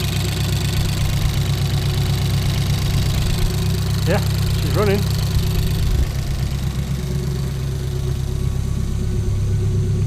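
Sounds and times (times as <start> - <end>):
race car engine idling: 0.0 - 10.0.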